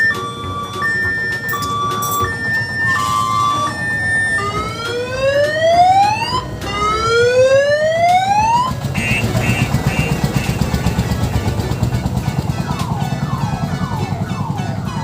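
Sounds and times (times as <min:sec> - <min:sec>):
beep tone: 0:00.0 - 0:04.6
rising electronic siren sweeps: 0:00.0 - 0:08.8
low engine rumble: 0:00.0 - 0:15.0.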